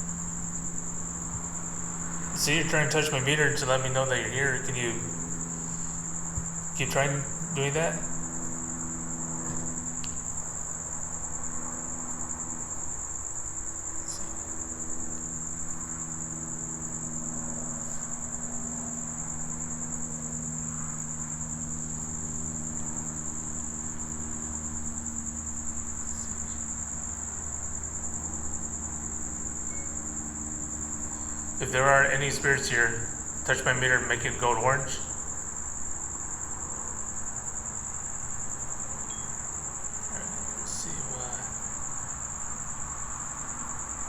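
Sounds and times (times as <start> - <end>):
crickets trilling: 0.0 - 44.0
faint low hum: 0.0 - 44.0.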